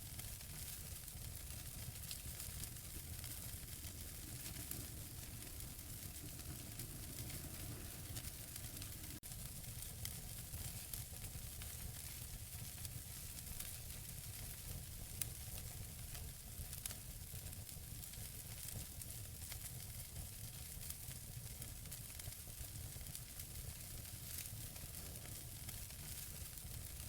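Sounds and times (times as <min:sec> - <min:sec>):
wood fire crackling and popping: 0:00.0 - 0:27.0
fire hissing: 0:00.1 - 0:10.7
low steady rumble: 0:02.0 - 0:09.2.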